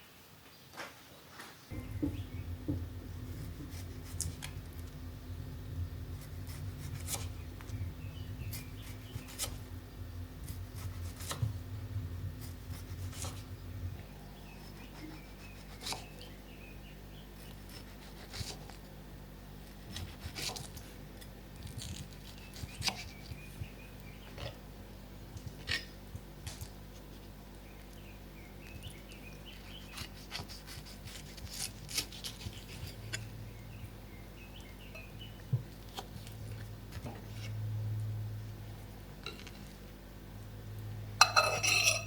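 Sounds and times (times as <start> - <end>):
coffee machine humming: 1.7 - 15.4
cups and utensils clicking: 41.2 - 42.0.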